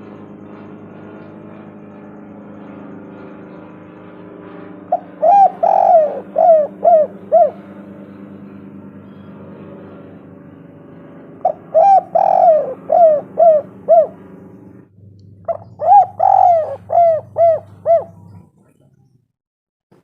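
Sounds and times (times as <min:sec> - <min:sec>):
low steady hum: 0:00.0 - 0:19.3
dove cooing: 0:04.9 - 0:09.5, 0:11.4 - 0:19.0.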